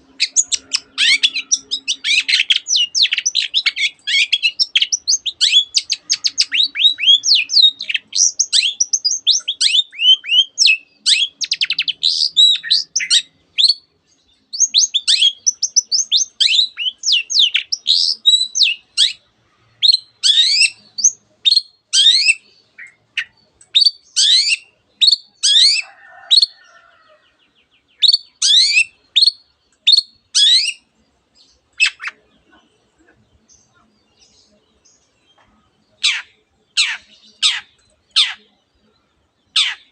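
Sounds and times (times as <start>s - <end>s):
shrike singing chirps and whistles: 0.1s - 13.9s, 14.5s - 26.6s, 27.9s - 30.9s.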